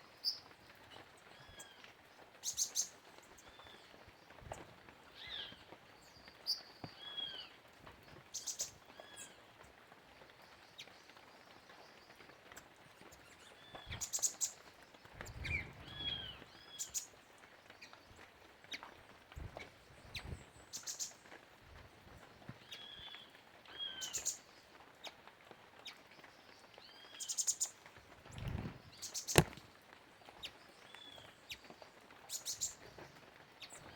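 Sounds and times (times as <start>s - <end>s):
birds whistling and chirping: 15.2s - 17.0s.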